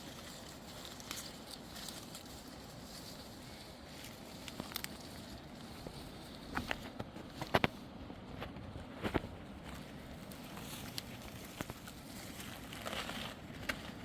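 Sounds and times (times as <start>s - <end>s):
low steady background noise: 0.0s - 14.0s.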